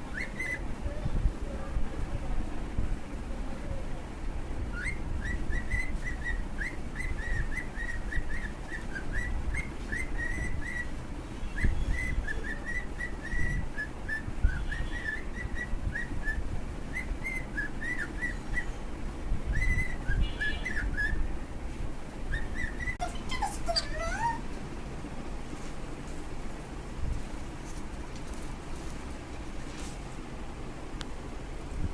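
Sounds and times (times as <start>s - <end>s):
cockatiel whistling chirpy notes: 0.1s - 0.6s, 4.7s - 10.9s, 11.5s - 18.8s, 19.5s - 21.2s, 22.3s - 24.4s
low gliding bird call: 22.3s - 24.5s.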